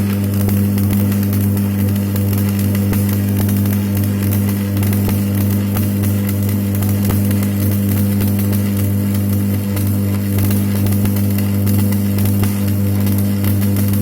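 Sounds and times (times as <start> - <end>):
welding arc crackling: 0.0 - 14.0
welding set humming: 0.0 - 14.0.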